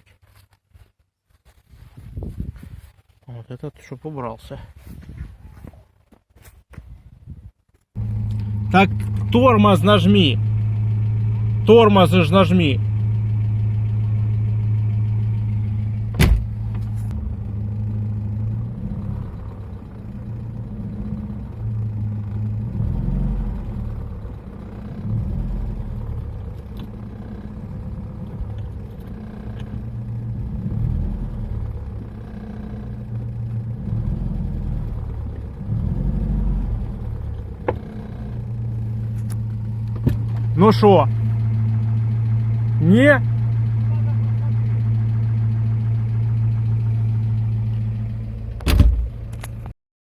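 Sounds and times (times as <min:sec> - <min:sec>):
petrol engine running: 0:08.0 - 0:49.7.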